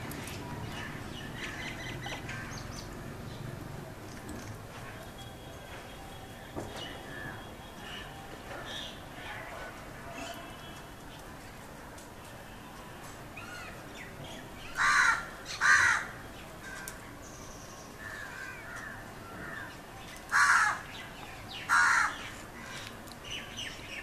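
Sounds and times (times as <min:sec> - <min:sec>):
loud harsh caws: 0:14.8 - 0:16.1, 0:20.3 - 0:20.9, 0:21.7 - 0:22.8.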